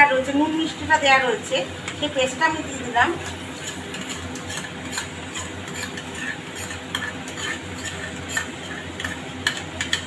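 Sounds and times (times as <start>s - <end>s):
paste sizzling in oil: 0.2s - 10.0s
spoon scraping plastic bowl: 3.6s - 9.2s.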